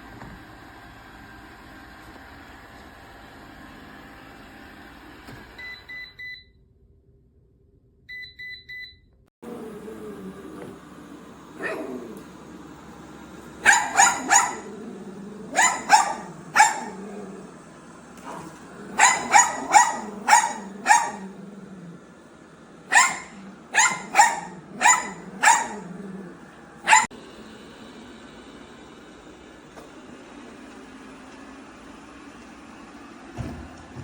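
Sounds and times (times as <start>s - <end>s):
dog barking: 11.6s - 12.2s, 13.6s - 17.4s, 18.2s - 21.4s, 22.9s - 26.1s, 26.8s - 27.1s.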